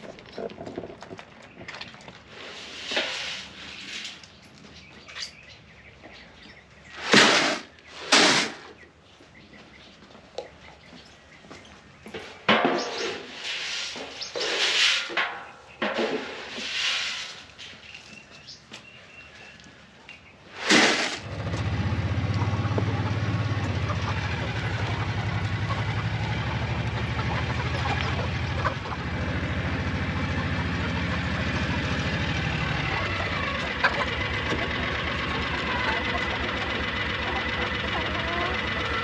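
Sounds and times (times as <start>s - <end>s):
vehicle engine starting and idling: 21.2s - 39.0s.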